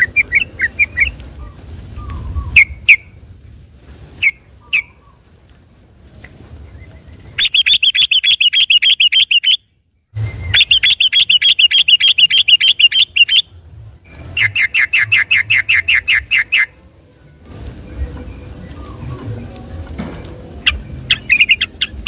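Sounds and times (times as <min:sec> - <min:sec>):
bulbul rapid rolling song: 0:07.1 - 0:09.6, 0:10.2 - 0:22.0.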